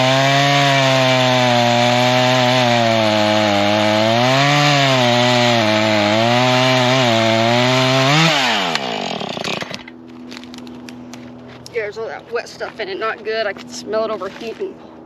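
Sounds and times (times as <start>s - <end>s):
chainsaw idling: 0.0s - 10.6s
chainsaw cutting into stump: 0.0s - 11.8s.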